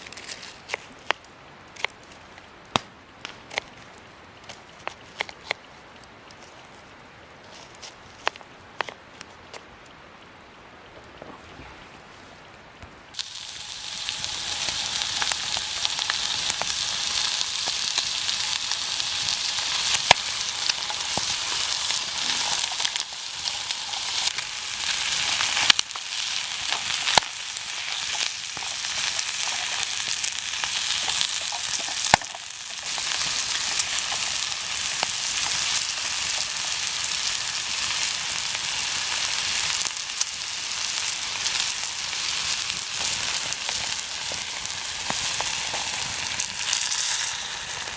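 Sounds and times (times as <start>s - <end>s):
food sizzling in a pan: 13.2s - 47.9s
oil popping and spattering: 13.2s - 47.9s.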